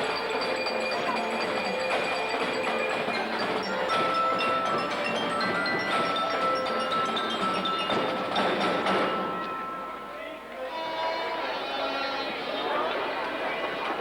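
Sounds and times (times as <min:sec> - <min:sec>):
glockenspiel notes: 0:00.0 - 0:10.5.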